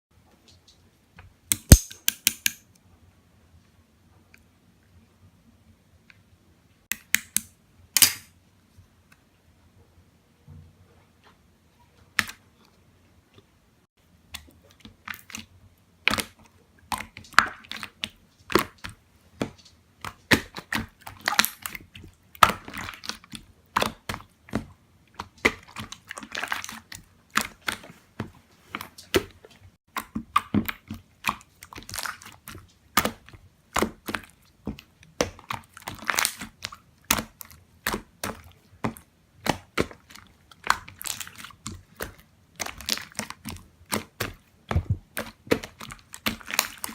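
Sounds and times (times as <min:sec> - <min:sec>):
slime crackling and popping: 0:35.2 - 0:38.5, 0:39.4 - 0:46.9.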